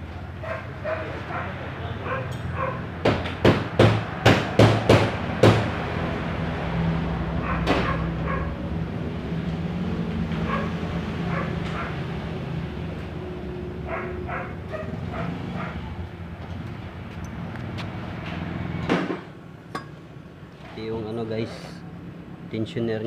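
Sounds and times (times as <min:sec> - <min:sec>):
sharp knocks: 0:03.0 - 0:05.7, 0:18.8 - 0:20.0.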